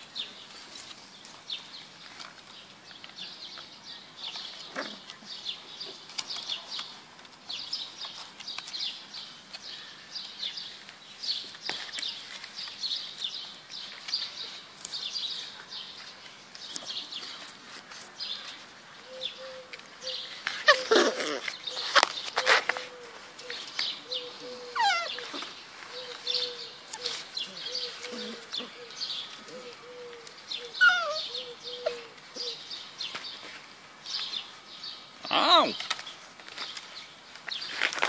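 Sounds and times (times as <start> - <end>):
puppies scuffling on grass: 10.2 - 19.1, 19.7 - 29.5
birds chirping: 18.2 - 37.9.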